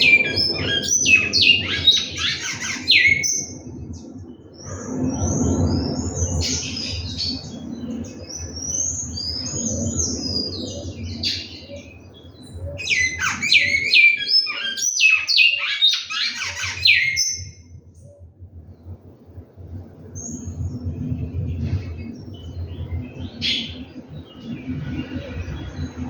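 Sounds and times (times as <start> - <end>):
finch singing whistled notes: 0.0 - 3.6, 8.3 - 18.2.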